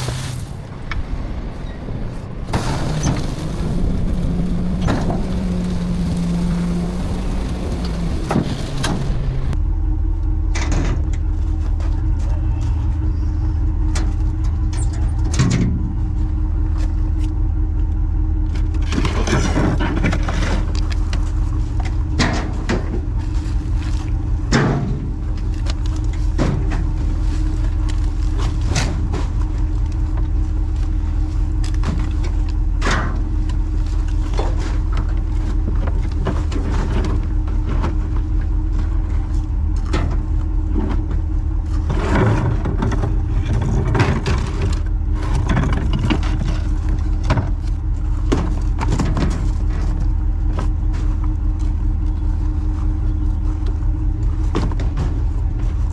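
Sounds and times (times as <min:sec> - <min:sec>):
garbage truck engine rumbling: 0:00.0 - 0:55.9
knocks and clatters: 0:39.8 - 0:50.7.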